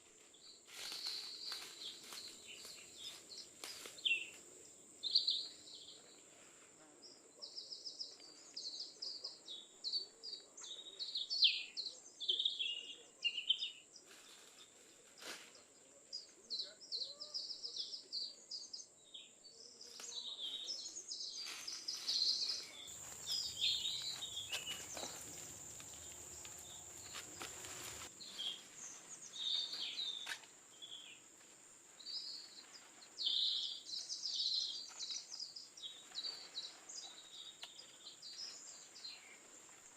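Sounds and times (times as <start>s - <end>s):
birds chirping and trilling: 16.9s - 31.2s, 32.0s - 39.4s.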